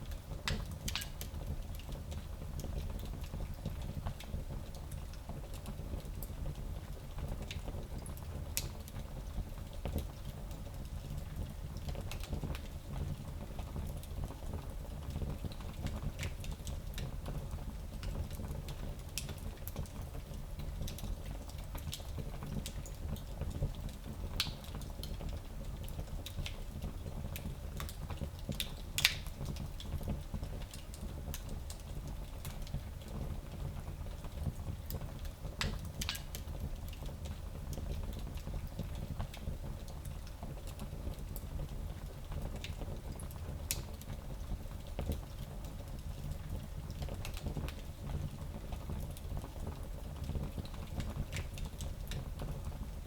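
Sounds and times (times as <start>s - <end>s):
wood fire burning with pops: 0.2s - 2.0s, 18.0s - 33.2s, 34.2s - 52.6s.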